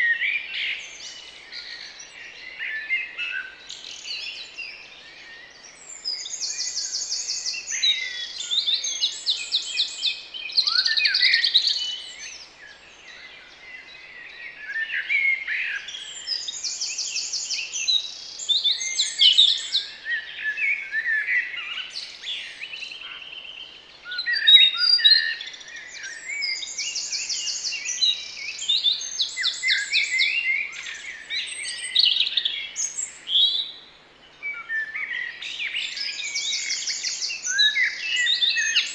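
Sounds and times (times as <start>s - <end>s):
garden birds singing: 0.0s - 38.9s
bird song with fast trill: 21.7s - 38.9s.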